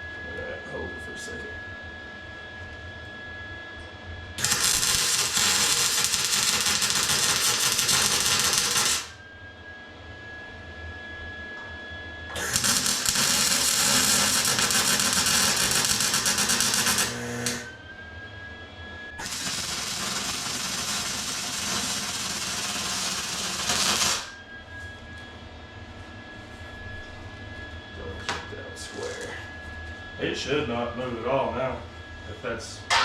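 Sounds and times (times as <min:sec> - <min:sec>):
welding arc crackling: 0:04.4 - 0:09.2, 0:12.4 - 0:17.7, 0:19.2 - 0:24.4.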